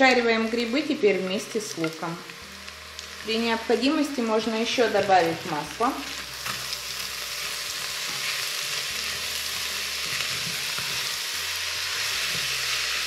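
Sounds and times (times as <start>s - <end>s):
vegetables sizzling in oil: 0.0s - 13.0s
spatula scraping: 4.9s - 11.2s.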